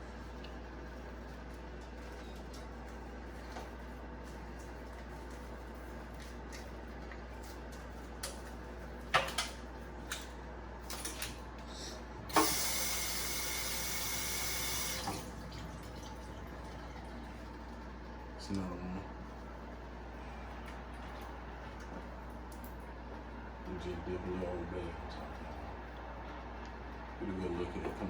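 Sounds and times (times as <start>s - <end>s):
kitchen faucet running: 12.3s - 17.1s.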